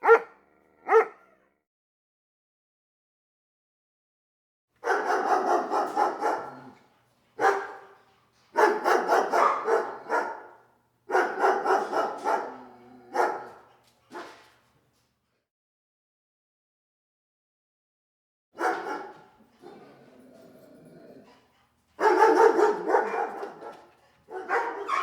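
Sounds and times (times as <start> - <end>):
dog barking: 0.0 - 1.4, 4.8 - 6.8, 7.4 - 8.0, 8.6 - 14.4, 18.6 - 20.0, 22.0 - 25.0.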